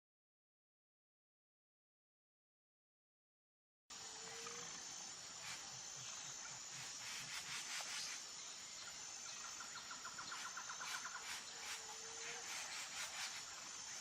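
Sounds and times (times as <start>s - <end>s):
high insect whine: 3.9s - 14.0s.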